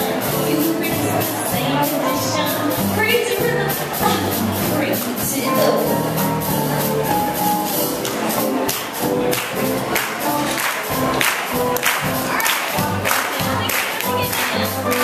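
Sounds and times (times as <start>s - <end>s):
big band playing swing: 0.0s - 15.0s.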